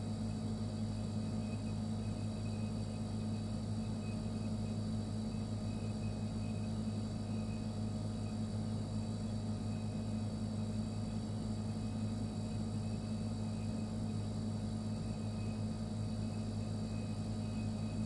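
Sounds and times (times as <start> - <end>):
refrigerator compressor hum: 0.0 - 18.0.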